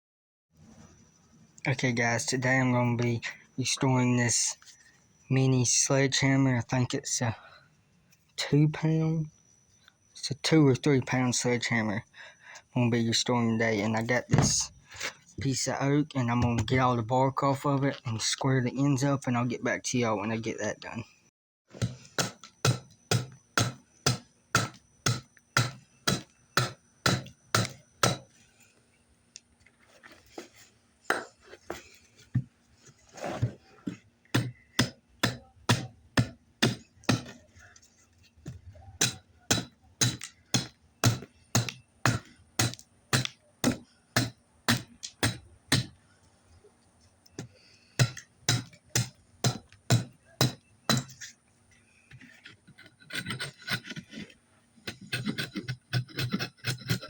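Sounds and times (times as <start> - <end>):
tool striking wood: 14.3 - 14.7, 21.8 - 28.3, 33.4 - 37.4, 39.0 - 46.0, 48.0 - 51.2.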